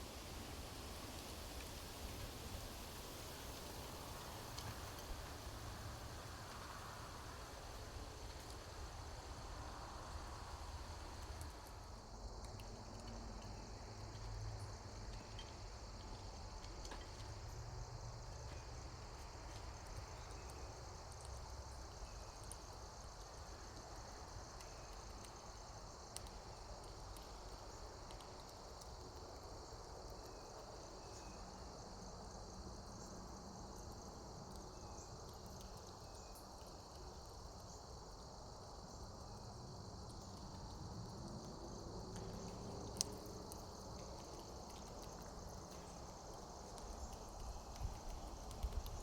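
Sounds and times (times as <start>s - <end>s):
high-pitched insect chorus: 18.1s - 49.0s.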